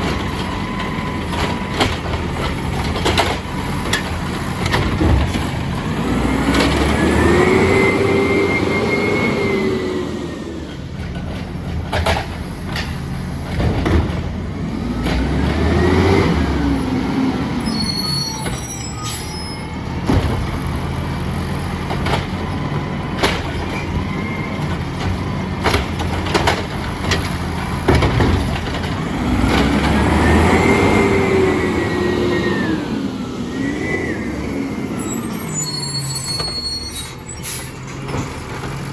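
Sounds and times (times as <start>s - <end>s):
garbage truck diesel engine revving: 0.0s - 19.0s, 19.6s - 38.9s
hydraulics working: 0.0s - 38.9s
sharp knocks and clanks: 11.1s - 14.4s, 24.7s - 30.0s.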